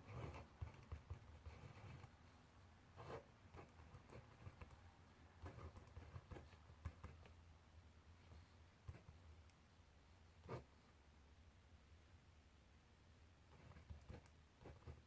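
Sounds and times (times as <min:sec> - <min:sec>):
pen scratching on paper: 0:00.0 - 0:02.2, 0:02.9 - 0:04.7, 0:05.4 - 0:07.4, 0:10.4 - 0:10.7, 0:13.5 - 0:15.0.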